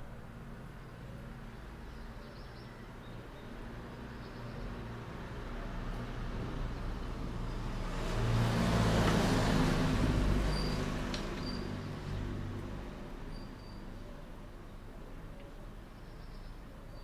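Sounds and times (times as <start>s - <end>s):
vehicle driving past: 4.7s - 13.8s.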